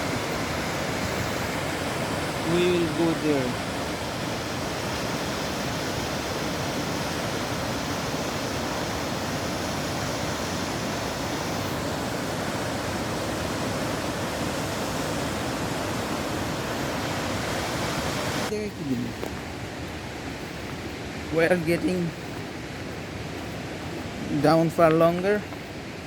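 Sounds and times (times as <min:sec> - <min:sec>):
waterfall rushing: 0:00.0 - 0:25.1.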